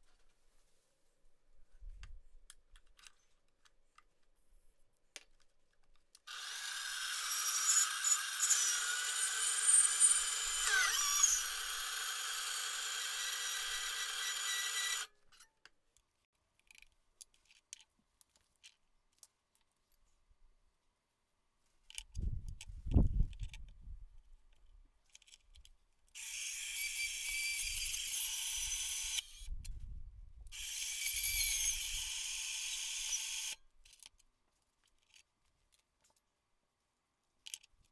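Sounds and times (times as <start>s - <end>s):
power tool running: 6.3s - 15.1s, 26.2s - 29.4s, 30.6s - 33.6s.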